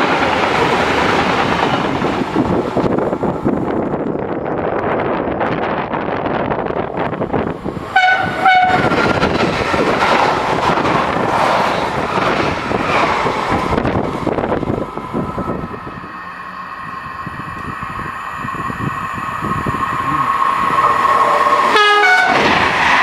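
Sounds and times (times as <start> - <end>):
train wheel and rail noise: 0.0 - 23.0
train horn blasts: 8.0 - 9.0, 21.2 - 22.4
steady whine: 13.4 - 21.8.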